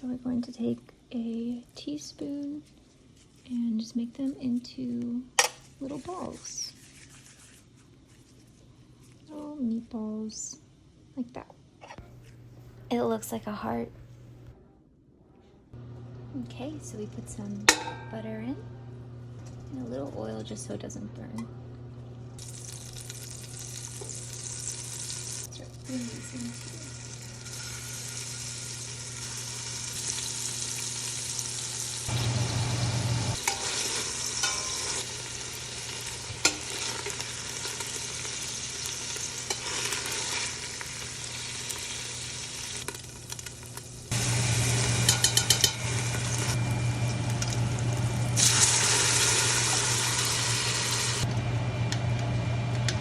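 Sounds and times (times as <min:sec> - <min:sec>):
meatballs sizzling in a pan: 0:22.4 - 0:51.2
stirring in a pan: 0:44.2 - 0:46.6.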